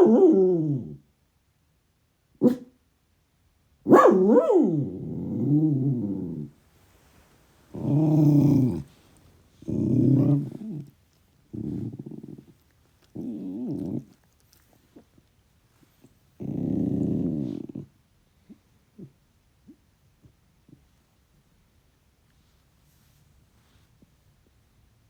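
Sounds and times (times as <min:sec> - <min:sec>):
dog growling and howling: 0:00.0 - 0:01.0, 0:03.9 - 0:06.6, 0:07.7 - 0:14.6, 0:16.4 - 0:17.9.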